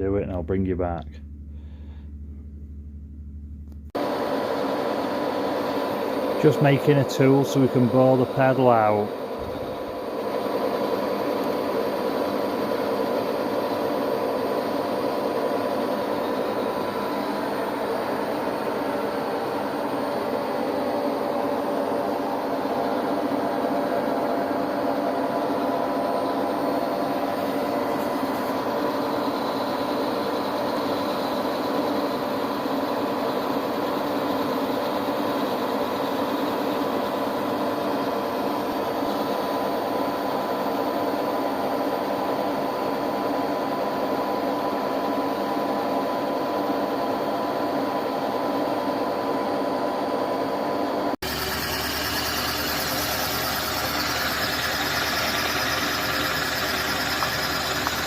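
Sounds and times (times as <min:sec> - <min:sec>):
electric motor humming: 0:51.2 - 0:58.0.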